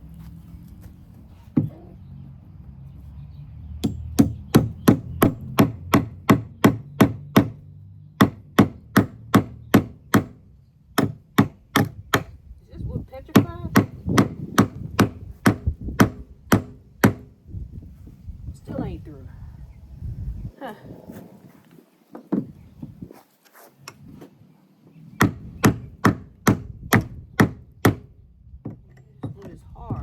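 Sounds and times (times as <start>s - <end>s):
hammer striking nail into wood: 3.8s - 7.6s, 8.2s - 10.4s, 11.0s - 12.4s, 13.4s - 17.4s, 25.2s - 29.4s.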